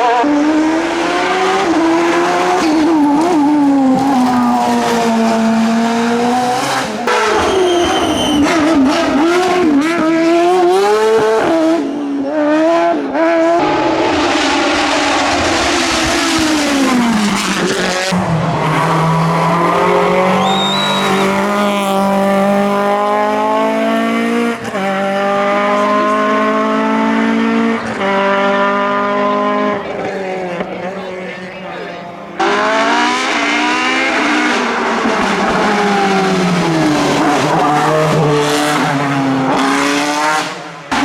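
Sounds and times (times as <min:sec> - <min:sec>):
race car engine revving: 0:00.0 - 0:41.0
tyre squeal: 0:07.1 - 0:08.9, 0:19.3 - 0:21.7.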